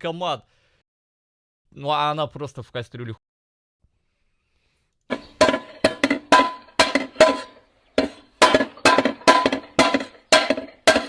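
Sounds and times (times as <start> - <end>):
ladle clanging on metal saucepan: 5.1 - 11.0.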